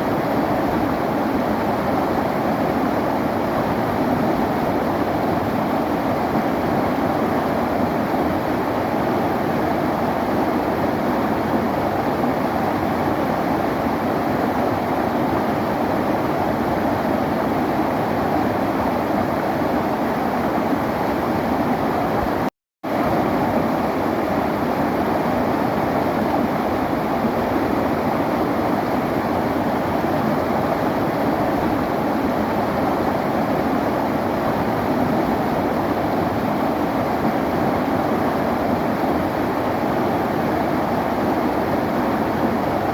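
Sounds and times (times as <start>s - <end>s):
river water rushing: 22.9s - 42.9s.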